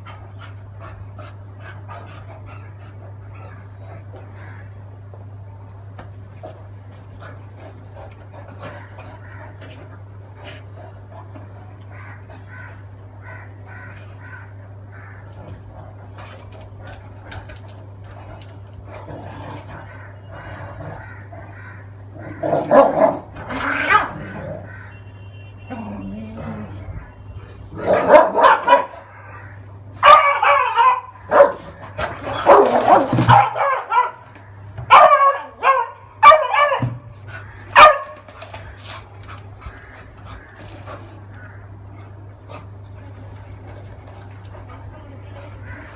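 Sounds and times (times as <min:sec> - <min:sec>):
dogs barking and yipping: 0:19.8 - 0:25.0, 0:27.8 - 0:42.9.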